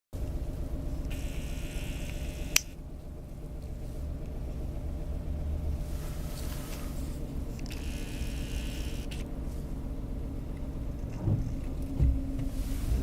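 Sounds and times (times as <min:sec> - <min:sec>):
sharp click: 0:02.1 - 0:02.8.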